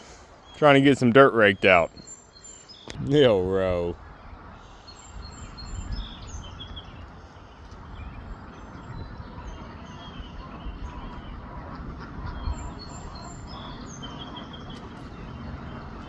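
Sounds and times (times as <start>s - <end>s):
birds chirping: 0.0s - 16.0s
steady low rumble: 2.9s - 16.0s.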